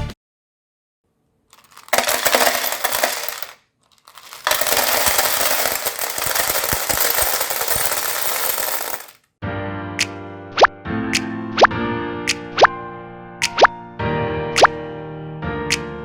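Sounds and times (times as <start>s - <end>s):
plastic bricks clattering: 1.6s - 9.2s.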